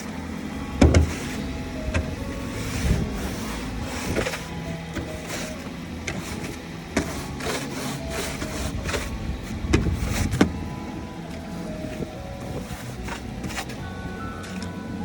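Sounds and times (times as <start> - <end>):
car engine idling: 0.0 - 15.0
brush sweeping snow: 1.0 - 10.5, 11.5 - 13.9.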